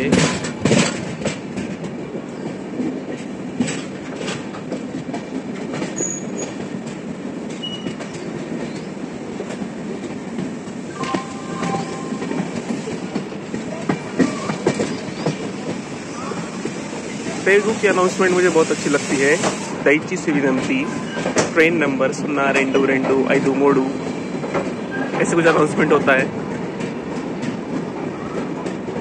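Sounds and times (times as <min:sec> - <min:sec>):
clacks over rail joints: 0:00.0 - 0:17.0, 0:19.4 - 0:29.0
train wheels rumbling on rails: 0:00.0 - 0:29.0
brief train squeal: 0:06.0 - 0:06.6, 0:07.6 - 0:08.9, 0:10.9 - 0:13.0, 0:24.8 - 0:25.2.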